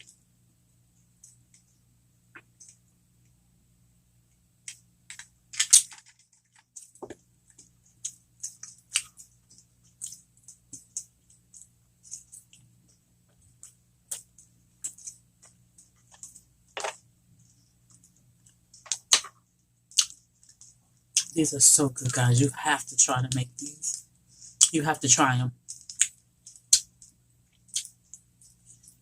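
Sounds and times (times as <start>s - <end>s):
chewing and mouth sounds: 13.5s - 16.4s, 19.9s - 21.4s, 25.6s - 29.0s.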